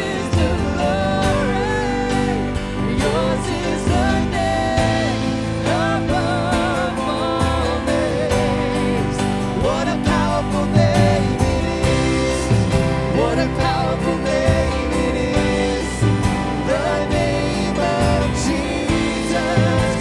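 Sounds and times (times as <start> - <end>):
singer's wordless vocal: 0.0 - 20.0
worship band playing: 0.0 - 20.0.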